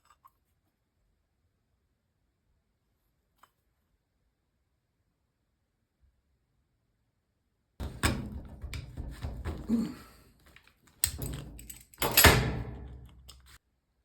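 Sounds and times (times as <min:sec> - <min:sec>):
knocks and clunks of handling: 0:07.8 - 0:13.6.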